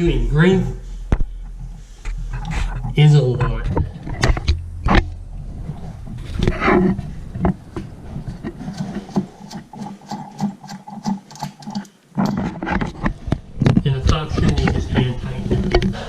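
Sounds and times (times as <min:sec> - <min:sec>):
plastic nut rubbing and scraping: 0:00.8 - 0:16.0.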